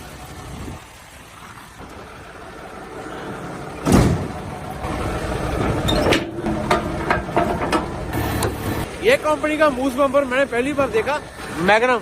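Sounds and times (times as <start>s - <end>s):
diesel engine rumbling: 0.0s - 12.0s
sharp knocks and clicks: 5.6s - 8.6s.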